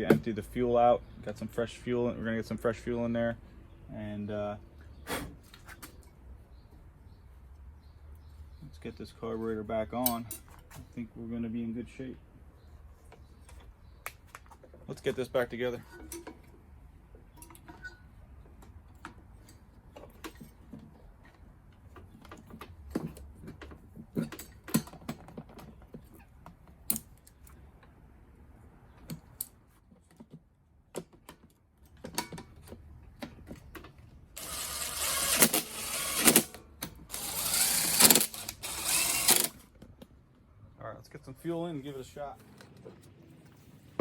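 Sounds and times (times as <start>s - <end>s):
cordless power driver running: 34.4s - 39.7s.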